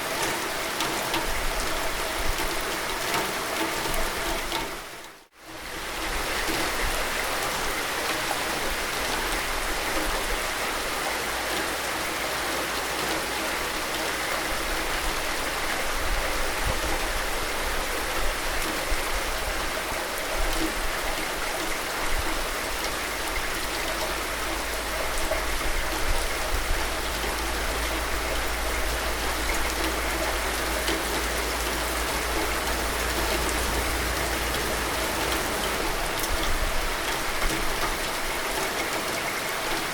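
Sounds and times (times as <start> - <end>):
louder raindrops: 0.0 - 39.9
steady rain hiss: 0.0 - 39.9
low rumble: 23.7 - 37.3.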